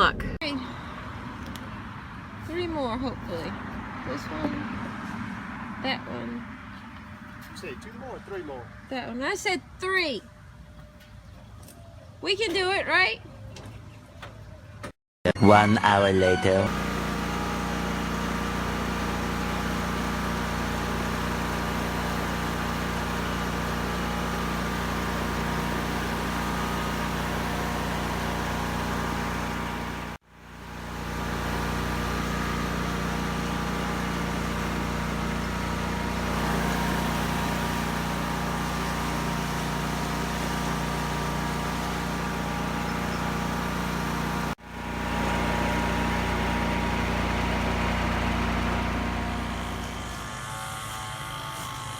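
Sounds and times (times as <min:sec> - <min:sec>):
engine running: 0:16.7 - 0:51.9.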